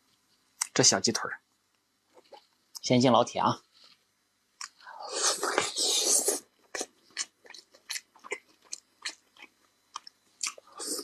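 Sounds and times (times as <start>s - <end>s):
mouth-open chewing with smacking: 6.6s - 11.0s.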